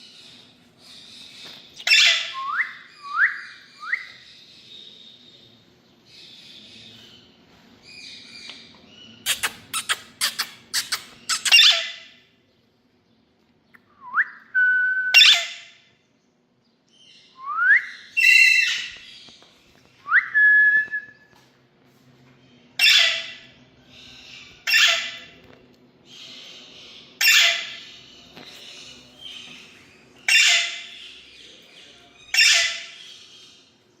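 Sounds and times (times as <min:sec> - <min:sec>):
parakeet squawks: 0:01.8 - 0:02.4, 0:09.3 - 0:12.2, 0:22.8 - 0:23.5, 0:24.6 - 0:25.3, 0:27.2 - 0:27.9, 0:30.3 - 0:31.0, 0:32.3 - 0:33.2.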